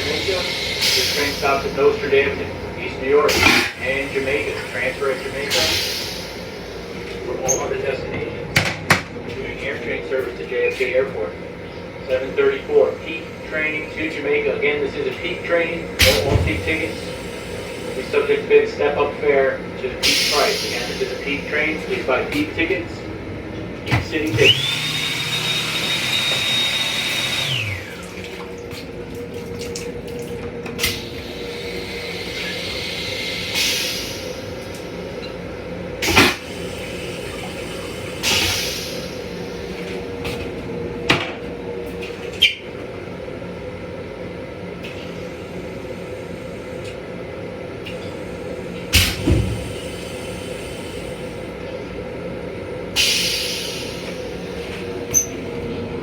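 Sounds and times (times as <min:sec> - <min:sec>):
steady hum: 0:00.0 - 0:33.6
toilet flushing: 0:00.0 - 0:42.8, 0:44.8 - 0:51.7, 0:52.8 - 0:56.0.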